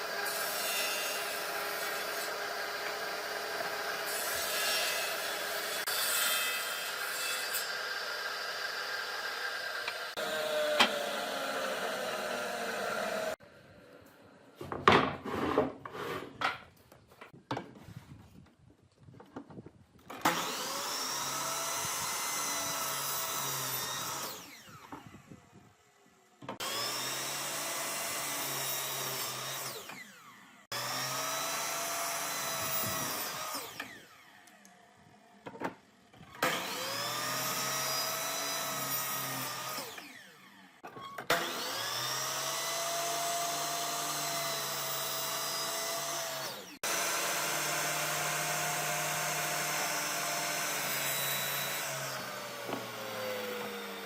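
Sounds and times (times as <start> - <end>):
power tool motor whining: 7.7 - 13.4, 20.1 - 25.6, 26.6 - 35.0, 36.2 - 54.0.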